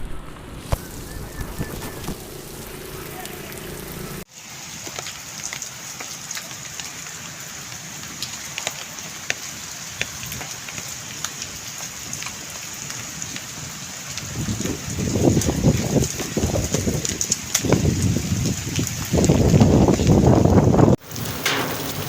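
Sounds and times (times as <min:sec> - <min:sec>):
low rushing noise: 0:00.0 - 0:04.3
heavy rain falling: 0:00.0 - 0:22.0.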